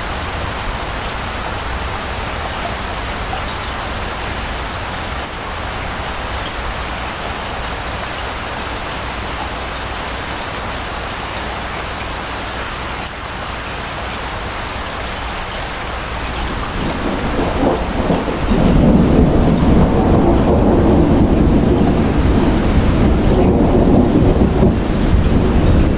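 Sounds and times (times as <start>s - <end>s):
rain falling: 0.0s - 25.9s
thunder rumble: 15.9s - 25.9s.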